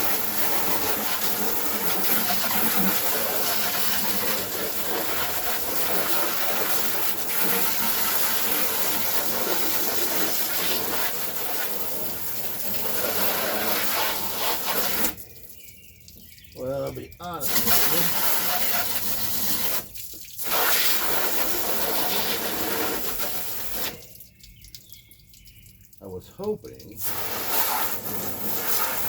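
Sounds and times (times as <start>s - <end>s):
hose spraying water into plastic hull: 0.0s - 24.9s, 26.0s - 29.0s.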